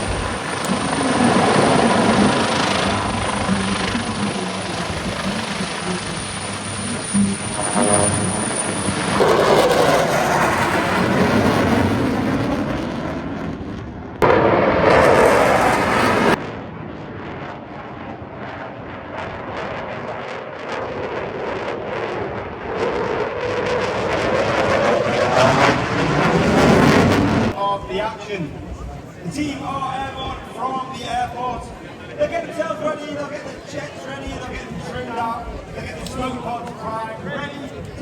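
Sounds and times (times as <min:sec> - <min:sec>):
military jet roaring past: 0:00.0 - 0:27.6.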